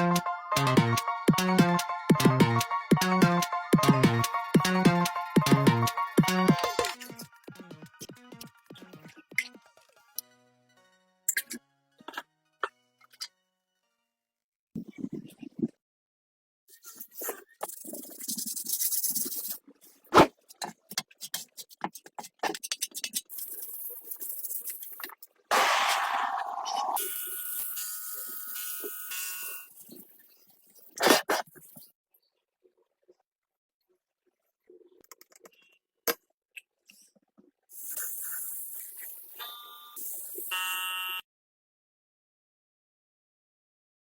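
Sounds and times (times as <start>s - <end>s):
sharp knock: 25.5s - 26.9s
hissy scraping: 25.5s - 27.0s.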